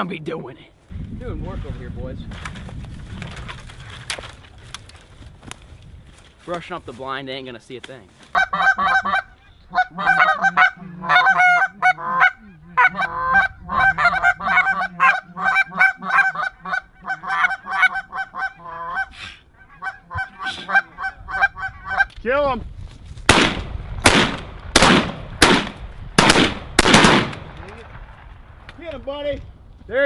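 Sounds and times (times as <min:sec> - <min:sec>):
goose honking and clucking: 0:08.3 - 0:22.2.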